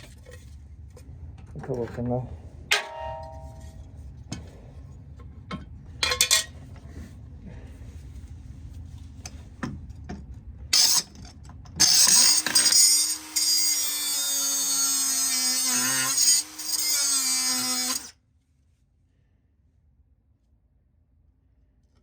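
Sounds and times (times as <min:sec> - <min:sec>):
angle grinder cutting steel: 0:11.8 - 0:18.1.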